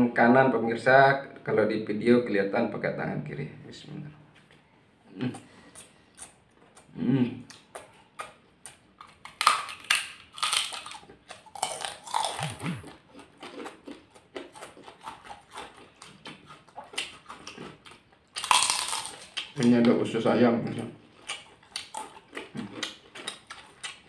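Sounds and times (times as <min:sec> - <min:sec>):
chewing rice: 0:05.7 - 0:19.9, 0:21.0 - 0:24.0
crunching fried crackers: 0:07.5 - 0:24.0.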